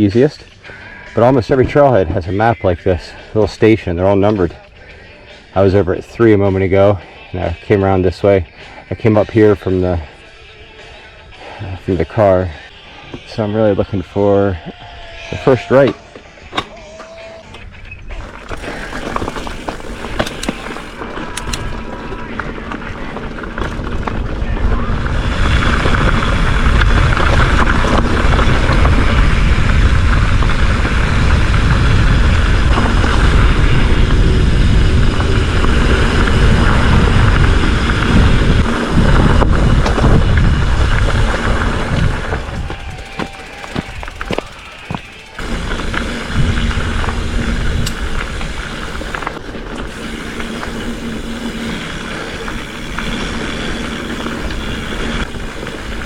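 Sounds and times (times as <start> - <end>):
bike tyres rolling over dirt: 1.2 - 56.0
wind buffeting microphone: 17.6 - 56.0.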